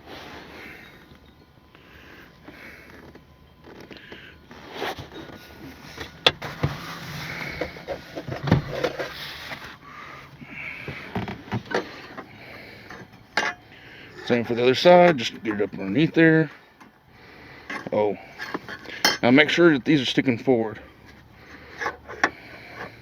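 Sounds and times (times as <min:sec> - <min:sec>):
person breathing: 0:00.0 - 0:03.2, 0:03.9 - 0:04.5, 0:09.1 - 0:11.2, 0:11.8 - 0:14.3, 0:17.1 - 0:19.1, 0:20.9 - 0:23.0
carpet rustling: 0:00.0 - 0:16.9.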